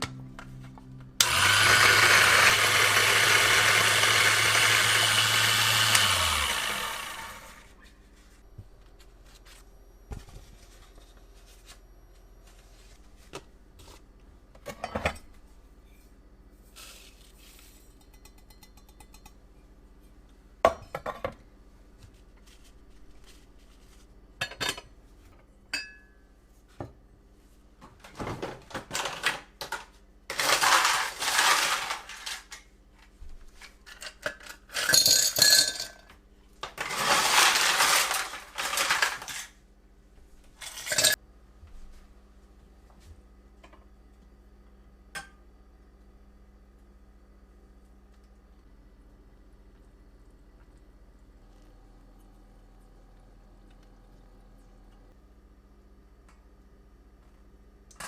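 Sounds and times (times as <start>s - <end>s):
utensils and dishes clinking: 33.9s - 36.0s, 40.6s - 41.2s.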